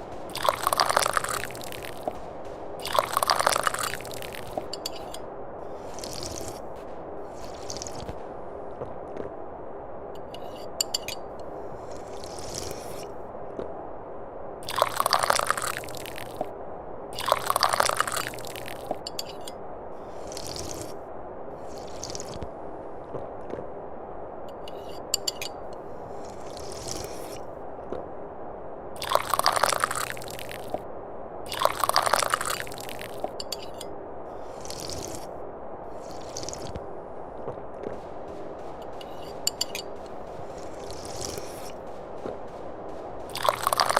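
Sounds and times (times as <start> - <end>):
low background noise: 0.0 - 43.9
tea slurping from cup: 2.8 - 5.2, 7.4 - 8.1, 17.2 - 18.6, 21.7 - 22.4, 29.0 - 30.7, 31.5 - 33.3, 34.4 - 35.3, 35.9 - 36.8, 43.3 - 43.9
person slurping tea: 11.9 - 13.1, 20.1 - 21.0, 34.4 - 35.3, 35.9 - 36.8.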